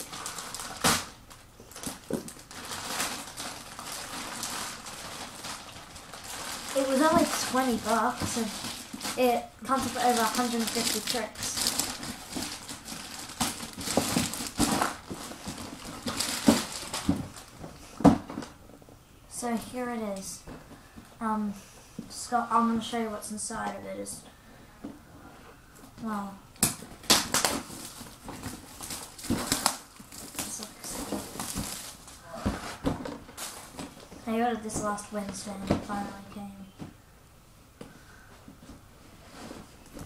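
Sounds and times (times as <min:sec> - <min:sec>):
packaging crinkling and rustling: 0:00.0 - 0:18.6, 0:26.6 - 0:34.9.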